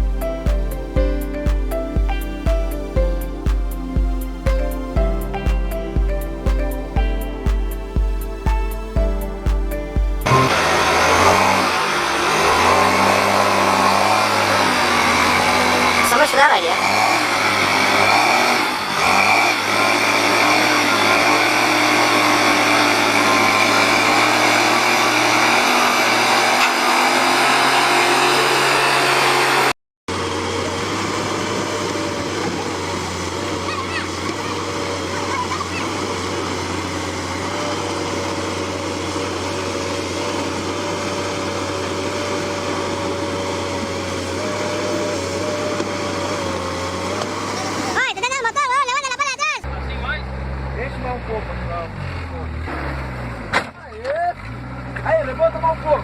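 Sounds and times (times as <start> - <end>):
heavy vehicle engines humming: 0.0 - 56.0.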